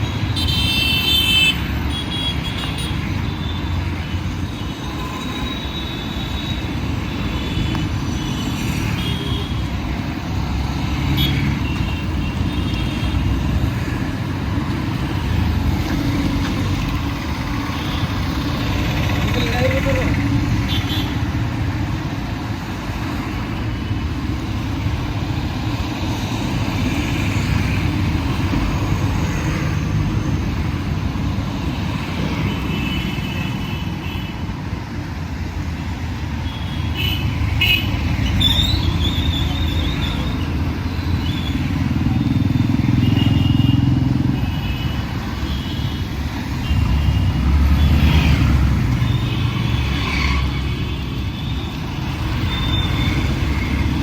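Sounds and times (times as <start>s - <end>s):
cars and trucks passing: 0.0s - 54.0s
motorcycle engines passing: 13.6s - 20.7s, 38.0s - 45.5s, 46.1s - 50.7s, 51.7s - 54.0s.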